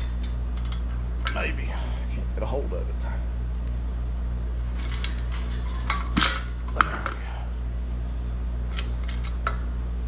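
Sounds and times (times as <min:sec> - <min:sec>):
metal engine parts clinking: 0:04.7 - 0:07.2.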